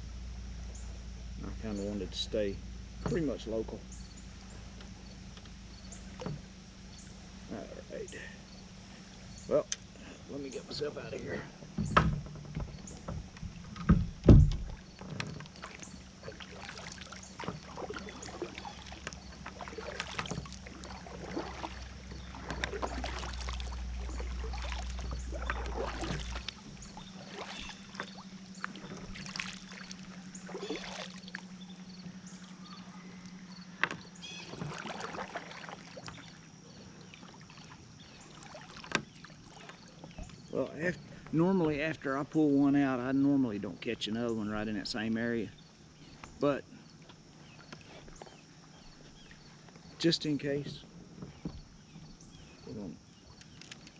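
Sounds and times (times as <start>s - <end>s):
low steady hum: 0.0s - 53.9s
paddle strokes splashing: 9.9s - 41.5s
loud knocks: 11.8s - 15.4s.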